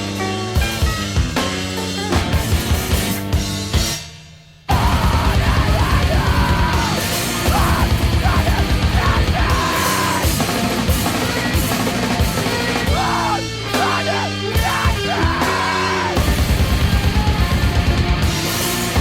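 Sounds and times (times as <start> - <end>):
heavy rock band music: 0.0 - 19.0
pounding drums: 2.2 - 19.0
screamed vocals: 4.7 - 10.6, 12.4 - 17.8.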